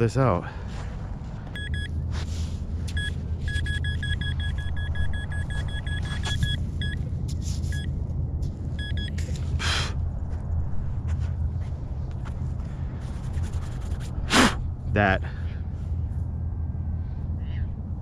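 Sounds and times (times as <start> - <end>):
low rumble: 0.6 - 18.0
metal detector beeps: 1.6 - 2.0, 2.9 - 7.0, 7.7 - 7.9, 8.8 - 9.2.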